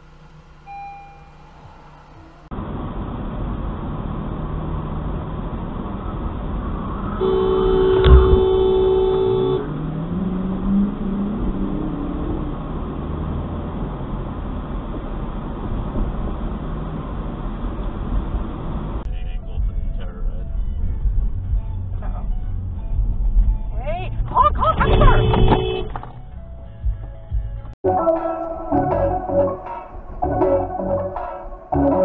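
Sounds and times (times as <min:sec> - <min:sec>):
road noise in moving car: 0:00.0 - 0:27.8
car horn honking: 0:07.2 - 0:09.8, 0:24.4 - 0:26.2
sharp thump: 0:07.9 - 0:08.8.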